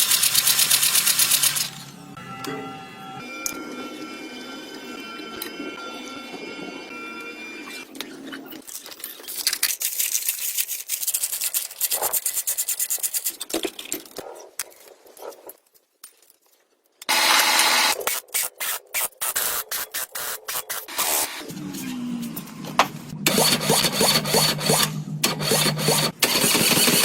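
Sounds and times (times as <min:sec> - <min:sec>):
sanding rubbing strokes: 0:10.4 - 0:13.5.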